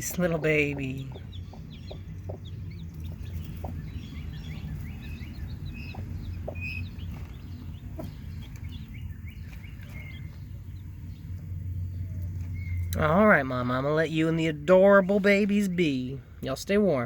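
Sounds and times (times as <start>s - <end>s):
hen clucking: 0.0s - 10.3s
chicks peeping: 0.0s - 13.1s
steady low hum: 0.0s - 17.0s.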